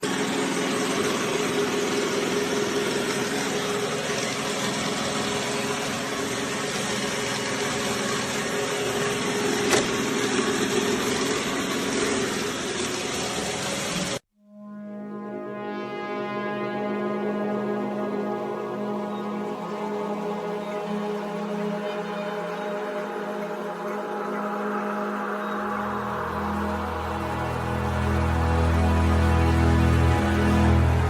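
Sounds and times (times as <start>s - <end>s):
machine whirring with low hum: 0.0s - 14.2s.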